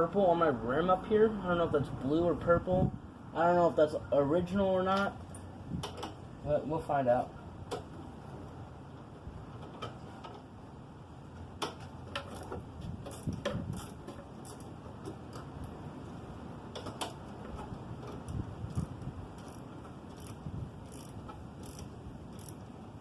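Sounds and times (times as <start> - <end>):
hand tools and metal parts clicking: 4.8 - 6.3, 11.3 - 22.8.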